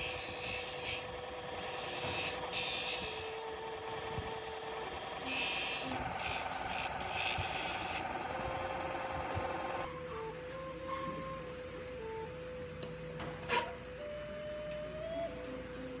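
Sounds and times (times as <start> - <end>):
abrasive rubbing on steel blade: 0.0 - 3.5.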